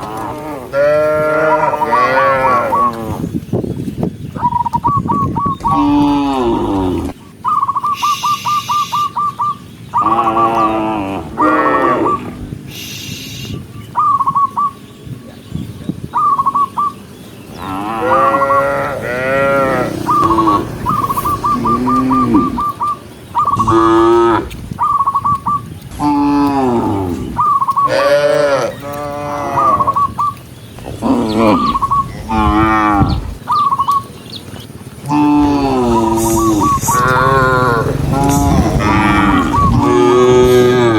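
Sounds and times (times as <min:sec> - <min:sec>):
cows mooing: 0:00.0 - 0:03.3, 0:05.6 - 0:07.2, 0:10.0 - 0:12.4, 0:17.5 - 0:25.2, 0:25.8 - 0:33.5, 0:35.0 - 0:40.9.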